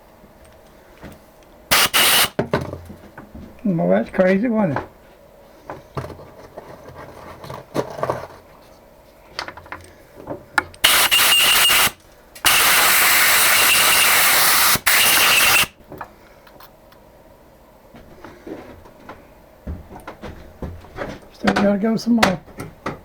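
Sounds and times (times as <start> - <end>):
compressed air gun blasts: 1.7 - 2.4, 10.8 - 15.7.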